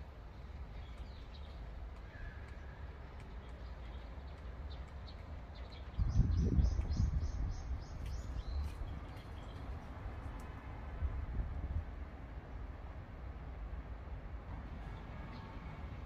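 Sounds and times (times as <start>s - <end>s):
wind rumbling on microphone: 0.6s - 12.3s.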